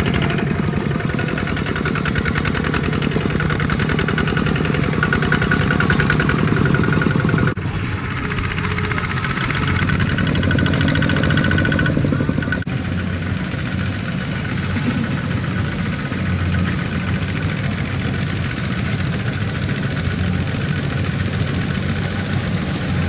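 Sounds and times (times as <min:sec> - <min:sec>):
tractor diesel engine clattering: 0:00.0 - 0:23.0.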